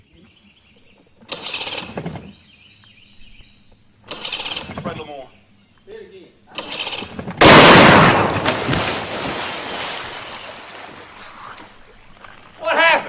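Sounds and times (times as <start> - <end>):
fishing reel drag ratcheting: 1.3 - 2.0, 4.1 - 4.8, 6.6 - 7.2.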